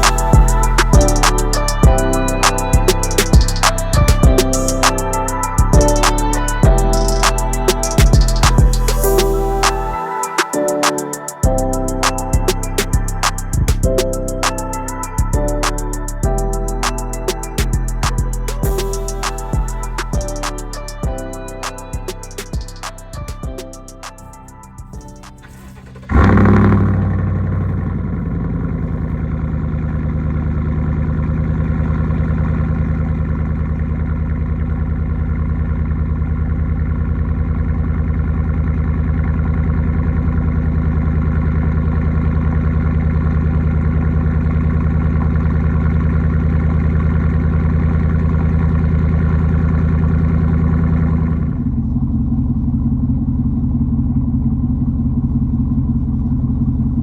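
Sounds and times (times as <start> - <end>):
pickup engine idling: 25.4 - 57.0.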